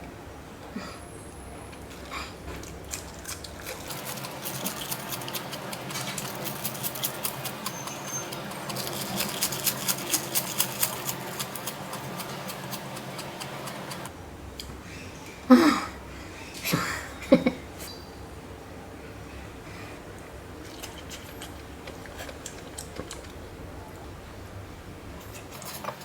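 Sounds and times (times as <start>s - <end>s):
person chewing wetly: 1.7s - 14.1s, 20.6s - 23.4s.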